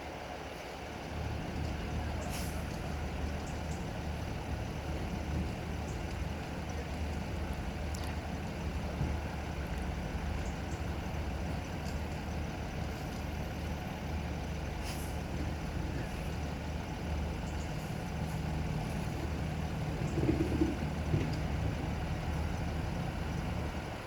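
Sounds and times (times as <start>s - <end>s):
vehicle engines idling: 0.0s - 24.0s.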